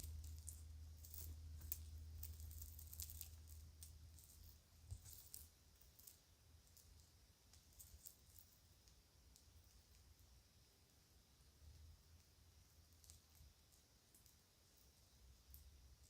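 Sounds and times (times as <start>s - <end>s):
jewelry clicking: 0.0s - 10.0s.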